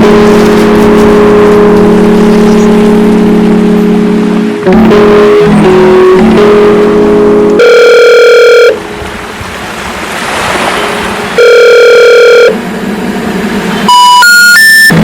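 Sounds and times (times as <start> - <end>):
long telephone tones: 4.6 - 9.0, 11.4 - 12.6, 13.8 - 15.0
rising short telephone tones: 7.6 - 8.8, 11.4 - 12.6, 13.8 - 15.0.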